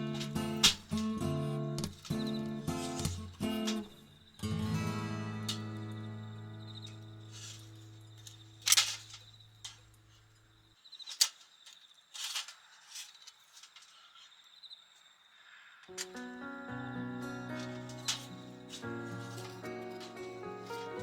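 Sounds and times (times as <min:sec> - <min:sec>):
insect trill: 0:00.0 - 0:21.0
strummed acoustic guitar chord: 0:04.4 - 0:06.4, 0:15.9 - 0:21.0.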